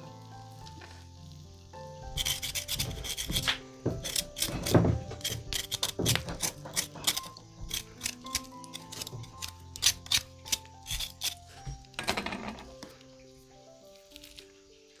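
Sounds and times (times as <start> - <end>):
background music: 0.0 - 15.0
rough rubbing and rasping strokes: 2.0 - 11.9.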